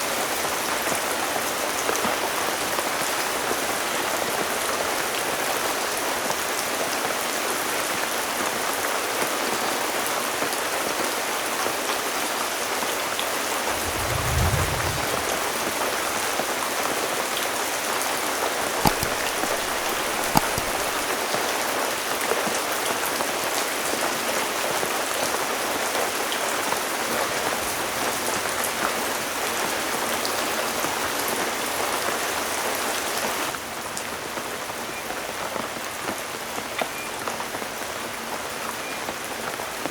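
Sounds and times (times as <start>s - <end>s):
low thump: 13.7s - 15.4s
heavy rain: 13.7s - 16.6s, 17.2s - 31.5s.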